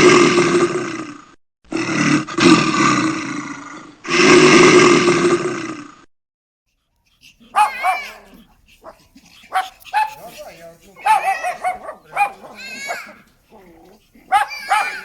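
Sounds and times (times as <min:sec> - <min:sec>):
large animal roaring: 0:00.0 - 0:06.1, 0:11.3 - 0:15.0
high-pitched yelps: 0:07.4 - 0:15.0.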